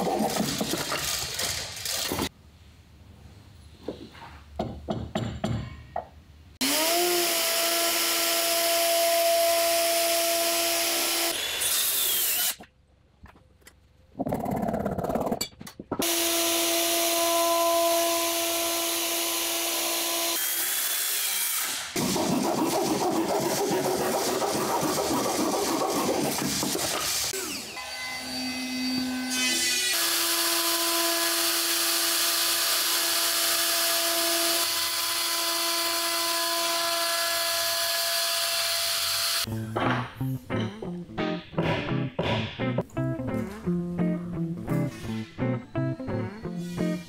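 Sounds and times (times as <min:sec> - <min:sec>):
router cutting wood: 0:06.6 - 0:12.6, 0:16.0 - 0:39.5
hand saw rasping wood: 0:22.0 - 0:27.0.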